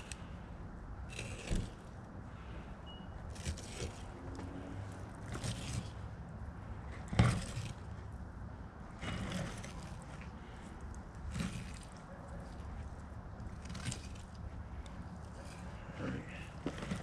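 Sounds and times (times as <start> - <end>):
knife scraping along fish backbone: 1.1 - 1.9, 3.3 - 4.5, 5.2 - 6.1, 7.0 - 7.9, 11.2 - 12.7, 13.5 - 14.4, 15.2 - 17.0.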